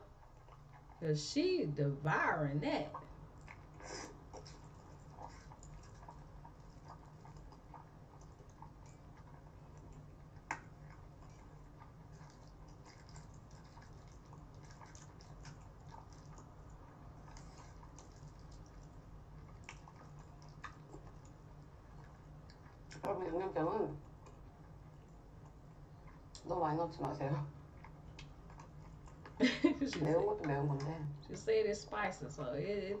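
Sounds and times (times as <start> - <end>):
chewing noodles: 0.0 - 1.0, 2.9 - 31.4
low steady hum: 0.0 - 33.0
wet mouth clicks: 19.6 - 21.4.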